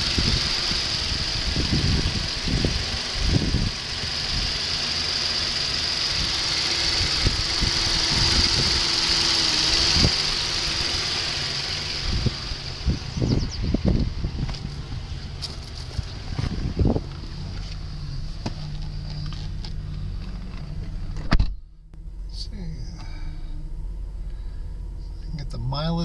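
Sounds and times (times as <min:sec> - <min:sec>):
car engine idling: 0:00.0 - 0:26.0
low thumps: 0:06.2 - 0:25.5.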